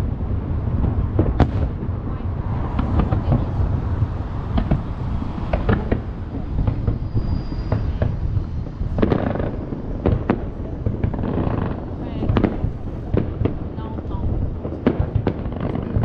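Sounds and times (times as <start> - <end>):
distant fireworks rumble: 0.0 - 16.0
fireworks bangs and booms: 0.0 - 16.0
fireworks crackling hiss: 0.0 - 16.0.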